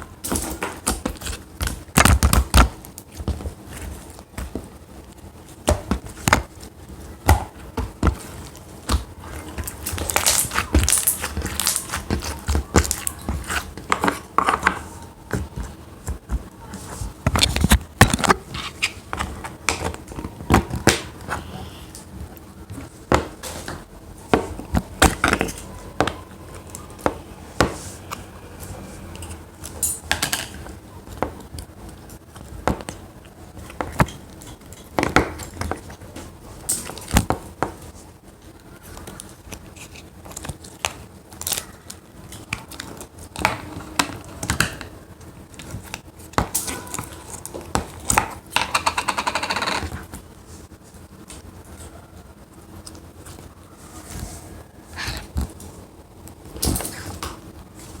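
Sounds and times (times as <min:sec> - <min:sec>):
hands squishing slime: 0:05.4 - 0:21.5.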